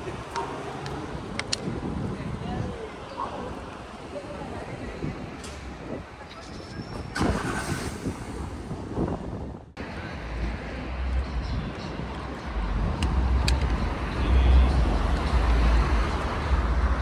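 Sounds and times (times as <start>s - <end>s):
traffic noise: 0.0s - 17.0s
wind buffeting microphone: 0.0s - 17.0s.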